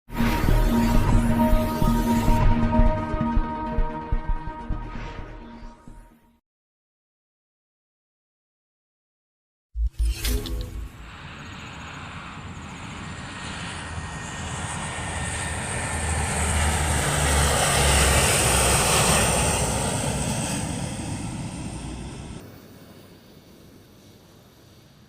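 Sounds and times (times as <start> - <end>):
heavy truck passing: 13.8 - 22.4.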